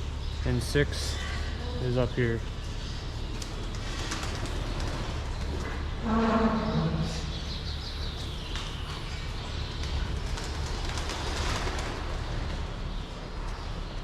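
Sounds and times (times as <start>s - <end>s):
birds chirping: 0.0s - 11.0s
steady low hum: 0.0s - 11.1s
low falling call: 6.0s - 7.8s.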